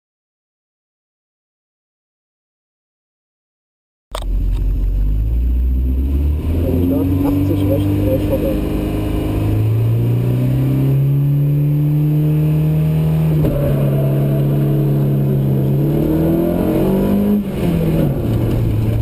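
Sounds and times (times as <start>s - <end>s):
rally car engine accelerating: 4.2s - 19.0s.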